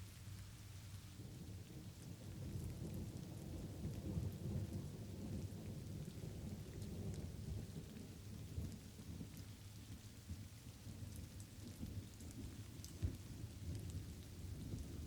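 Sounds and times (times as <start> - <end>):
light rain with drop ticks: 0.0 - 15.0
thunder rumbling: 1.2 - 9.4.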